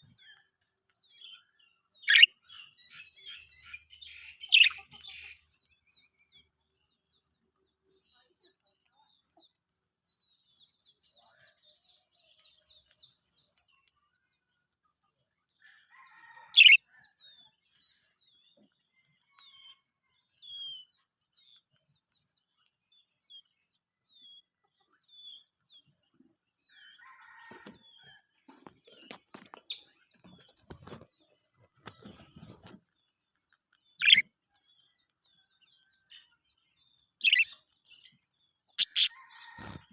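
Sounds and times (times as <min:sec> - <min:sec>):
budgerigars chirping: 0:02.1 - 0:03.0, 0:03.6 - 0:05.4, 0:16.6 - 0:16.8, 0:34.0 - 0:34.2, 0:37.2 - 0:37.6, 0:38.8 - 0:39.1
loud sharp bird calls: 0:37.2 - 0:37.6, 0:38.8 - 0:39.7.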